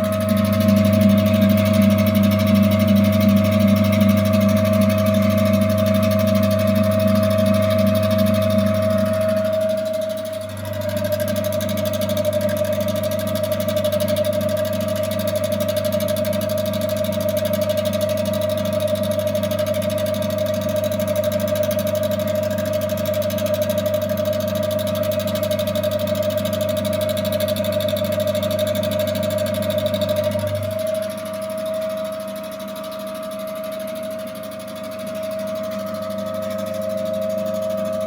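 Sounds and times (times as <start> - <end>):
washing machine motor humming: 0.0 - 38.0.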